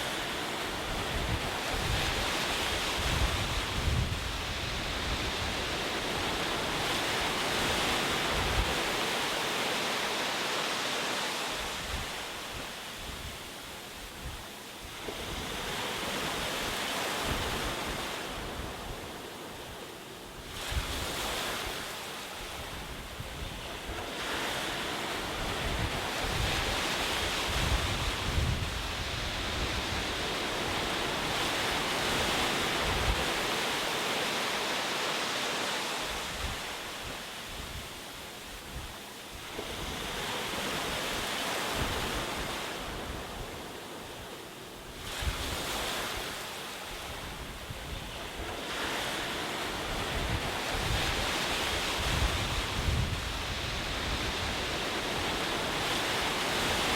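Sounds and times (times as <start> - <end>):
wind rumble on microphone: 0.0 - 9.1, 20.4 - 33.6, 36.0 - 43.8, 44.9 - 56.9.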